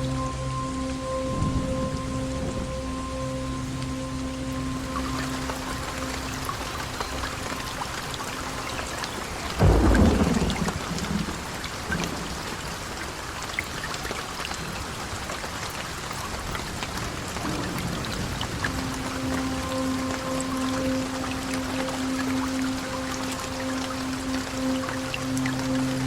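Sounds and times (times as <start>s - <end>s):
heavy rain: 0.0s - 26.0s
thunderclap rumbling: 9.6s - 12.6s.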